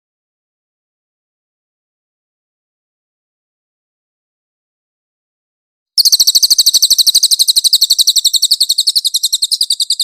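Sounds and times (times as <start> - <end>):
bird singing high trill: 6.0 - 10.0.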